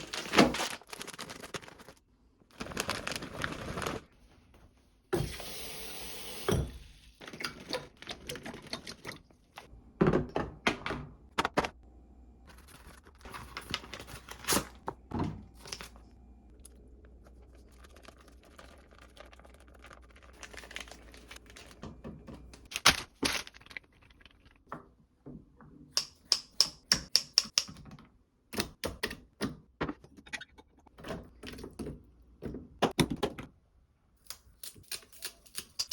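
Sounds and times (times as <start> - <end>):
packaging crinkling and tearing: 0.0 - 2.0, 2.6 - 4.1, 18.6 - 21.8, 22.7 - 24.5.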